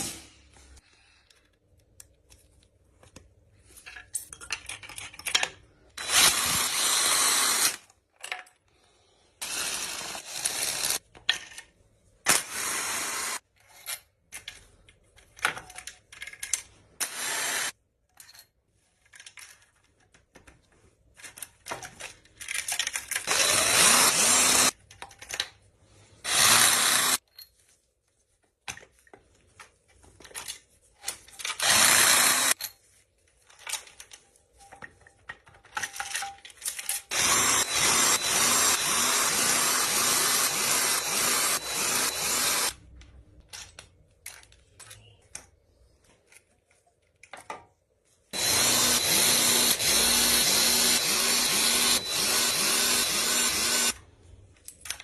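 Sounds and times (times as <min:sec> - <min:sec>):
handheld power tool running: 0:06.0 - 0:07.8, 0:09.4 - 0:11.0, 0:12.3 - 0:13.4, 0:17.0 - 0:17.7, 0:23.3 - 0:24.8, 0:26.2 - 0:27.2, 0:31.6 - 0:32.6, 0:37.1 - 0:42.8, 0:48.4 - 0:54.0.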